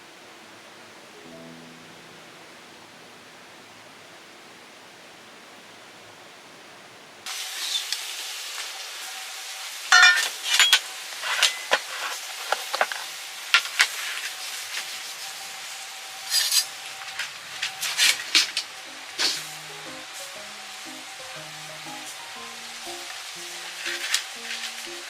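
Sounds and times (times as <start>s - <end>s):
sizzling hiss: 7.2s - 25.0s
metal utensils clinking on cookware: 9.9s - 11.9s.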